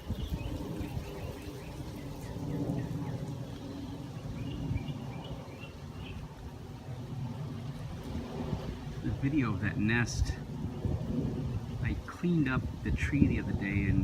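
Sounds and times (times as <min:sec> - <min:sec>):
small birds chirping: 0:00.0 - 0:07.9.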